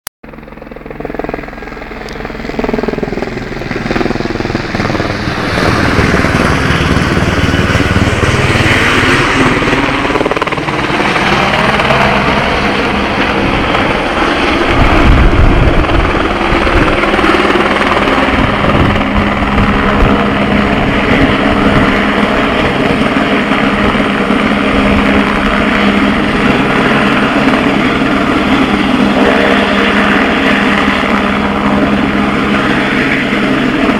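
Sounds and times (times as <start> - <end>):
helicopter rotor and turbine: 0.2 - 33.9.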